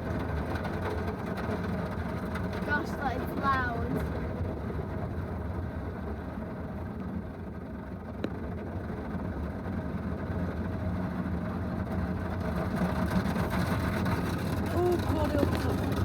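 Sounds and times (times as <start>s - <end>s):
car wash machinery rumbling: 11.0s - 16.0s.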